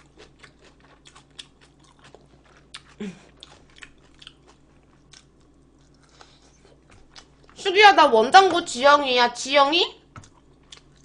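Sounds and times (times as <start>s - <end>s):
person chewing food: 0.0s - 7.6s, 10.0s - 11.0s.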